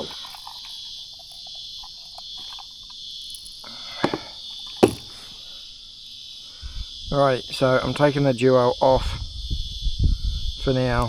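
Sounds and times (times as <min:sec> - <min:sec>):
insects singing: 0:00.0 - 0:11.0
sharp knocks: 0:04.8 - 0:05.2.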